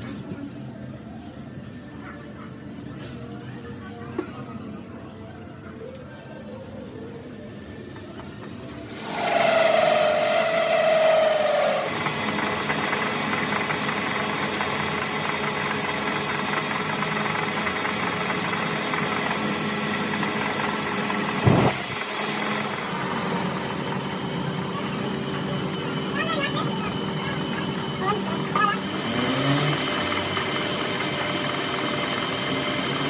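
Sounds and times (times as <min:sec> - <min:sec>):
engine running: 0:07.7 - 0:33.0.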